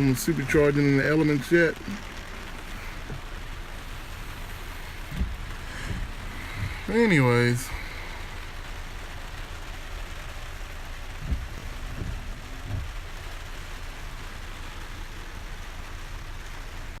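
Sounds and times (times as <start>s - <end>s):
low rumble: 0.0s - 16.4s
rain hiss: 0.0s - 17.0s
low thumps: 1.4s - 14.6s.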